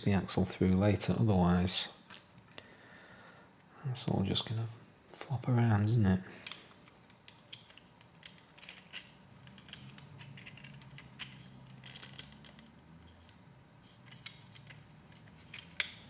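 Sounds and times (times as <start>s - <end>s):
plastic pieces clicking: 6.4s - 13.4s, 14.0s - 16.0s.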